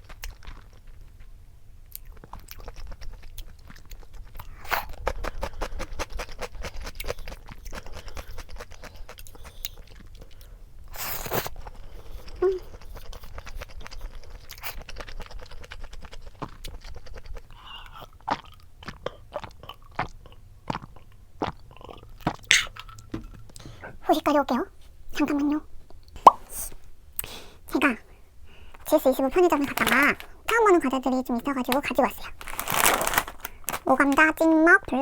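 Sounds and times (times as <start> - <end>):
person chewing: 0.0 - 24.0, 25.8 - 34.0
wet mouth clicks: 12.2 - 24.0, 25.9 - 27.4.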